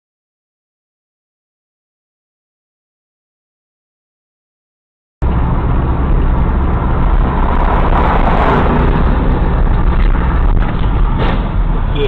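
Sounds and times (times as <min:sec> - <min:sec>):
rushing swell: 0:05.2 - 0:11.2
vehicle engine and road rumble: 0:05.2 - 0:12.0.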